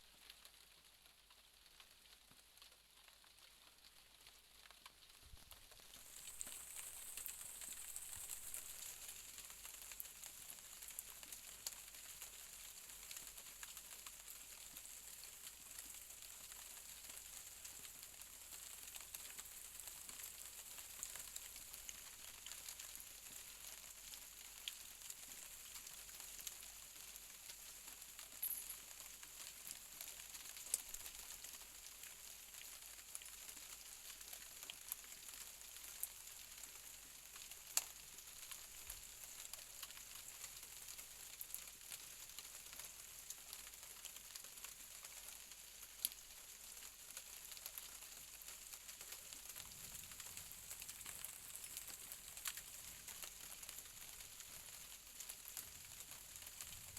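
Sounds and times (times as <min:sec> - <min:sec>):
raindrops ticking: 0:00.1 - 0:56.9
rain hissing: 0:49.7 - 0:54.5.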